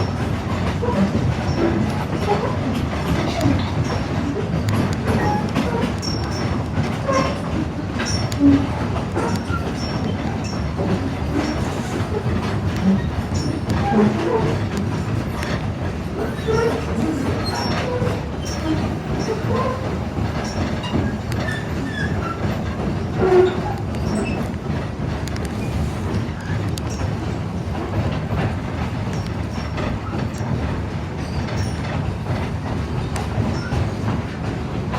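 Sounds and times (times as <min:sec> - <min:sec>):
clicks over rail joints: 0:00.0 - 0:34.9
train wheels rumbling on rail: 0:00.0 - 0:34.9
wheel squeals: 0:00.8 - 0:24.5, 0:25.5 - 0:27.1, 0:31.2 - 0:31.9, 0:33.5 - 0:33.8.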